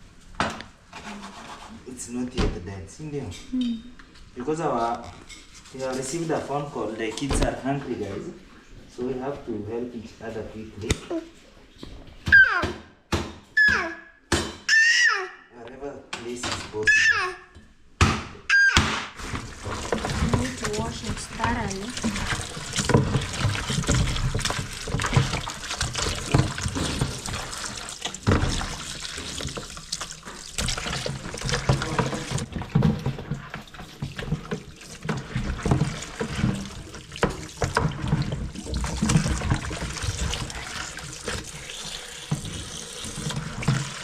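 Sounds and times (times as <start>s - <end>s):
dishes clattering in water: 19.2s - 44.0s
tap water splashing in sink: 19.2s - 44.0s.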